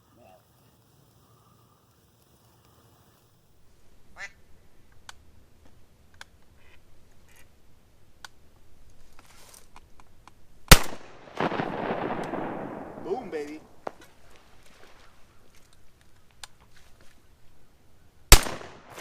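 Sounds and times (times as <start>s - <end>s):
faint duck quacks: 4.1s - 4.4s, 6.6s - 7.4s.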